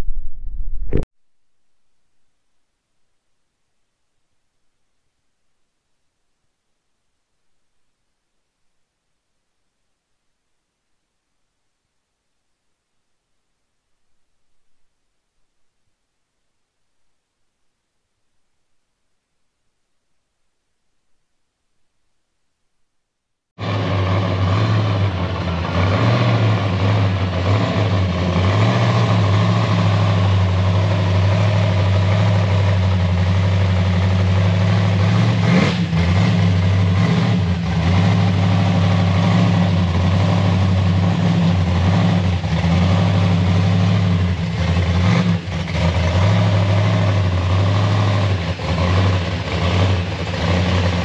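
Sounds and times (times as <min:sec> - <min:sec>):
car engine idling: 0:23.6 - 0:51.0.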